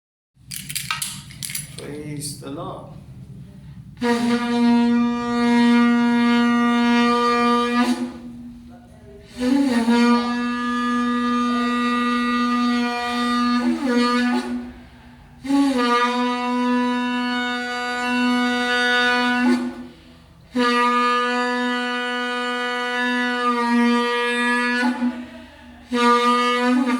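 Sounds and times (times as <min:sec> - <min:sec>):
shofar blasts: 0:04.0 - 0:08.3, 0:09.4 - 0:14.7, 0:15.4 - 0:19.9, 0:20.5 - 0:25.2, 0:25.9 - 0:26.9.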